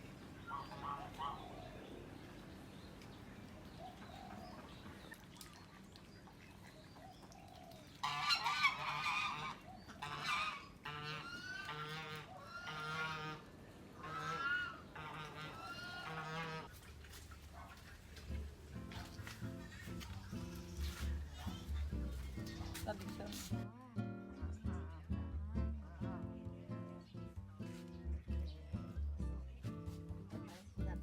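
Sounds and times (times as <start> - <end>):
geese honking: 0.4 - 1.8, 8.0 - 16.7.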